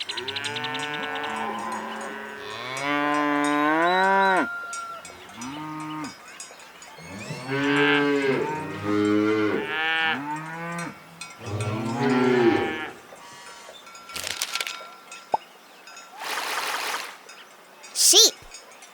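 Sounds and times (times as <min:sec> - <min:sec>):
cows mooing: 0:00.2 - 0:04.6, 0:07.2 - 0:13.0.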